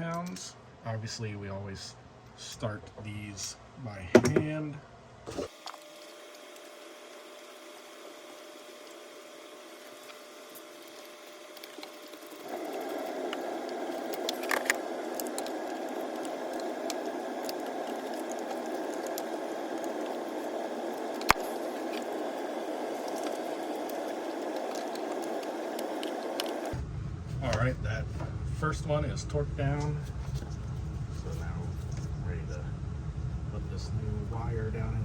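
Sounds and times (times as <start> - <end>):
steady hiss: 5.4 - 26.8.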